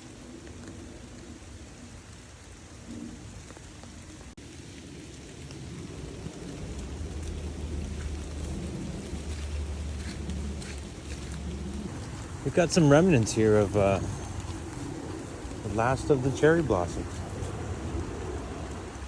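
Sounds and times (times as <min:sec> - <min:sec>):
steady rain falling: 0:00.0 - 0:19.0
low rumble: 0:04.2 - 0:19.0.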